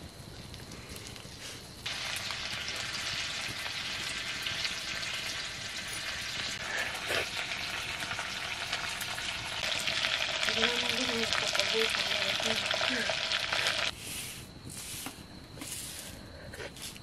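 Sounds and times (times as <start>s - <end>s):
crackling oil spits: 0.3s - 13.9s
food sizzling in hot fat: 1.8s - 16.0s.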